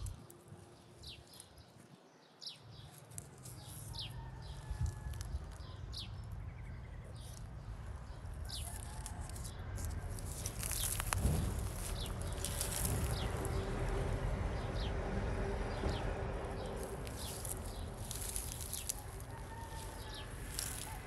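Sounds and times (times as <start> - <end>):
low steady rumble: 10.0 - 21.0.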